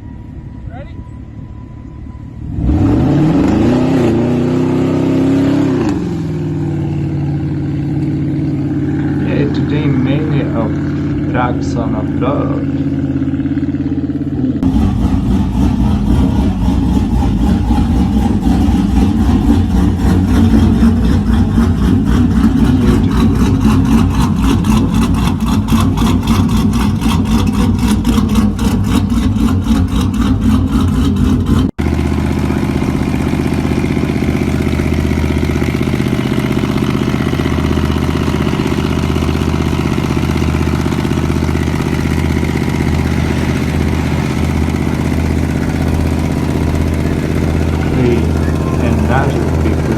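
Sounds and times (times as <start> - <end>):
engine idling: 0.0 - 49.9
truck engine loud exhaust pulsing: 0.0 - 49.9.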